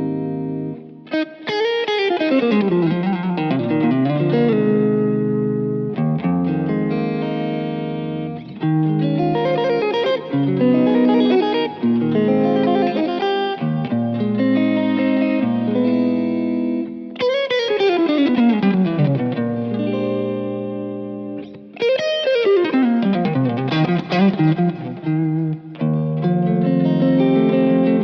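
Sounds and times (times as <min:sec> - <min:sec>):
electric guitar playing: 0:00.0 - 0:28.0.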